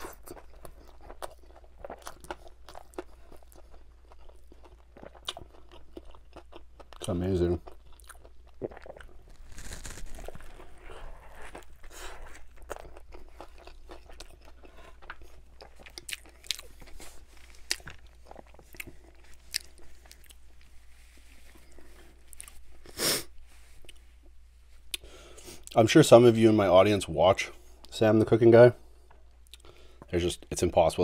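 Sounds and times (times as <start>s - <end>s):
crunchy chewing: 0.0s - 20.7s.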